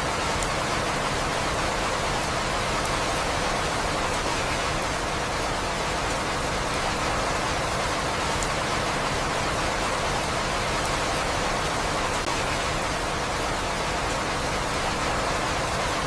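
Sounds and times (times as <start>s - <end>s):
steady rain hiss: 0.0s - 16.0s
faint raindrop ticks: 0.1s - 1.2s, 7.5s - 14.3s.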